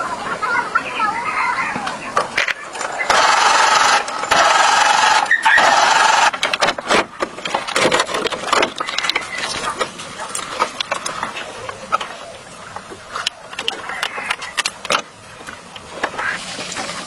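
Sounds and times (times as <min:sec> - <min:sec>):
clicks and knocks of parts: 0:02.2 - 0:16.2
power tool running: 0:02.8 - 0:06.6.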